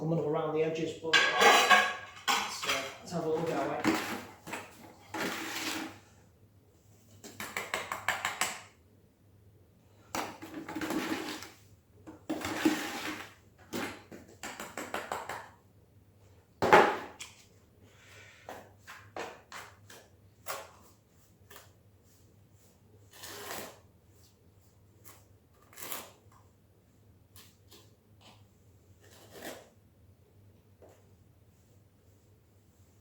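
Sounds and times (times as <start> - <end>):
trowel scraping adhesive: 5.2 - 6.0, 23.1 - 23.9, 29.0 - 29.7.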